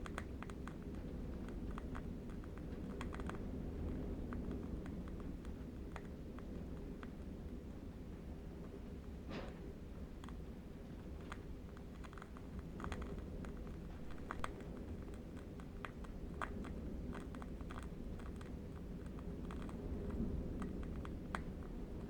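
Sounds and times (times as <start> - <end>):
distant wind rumble: 0.0 - 22.0
flame crackling and popping: 13.4 - 15.0.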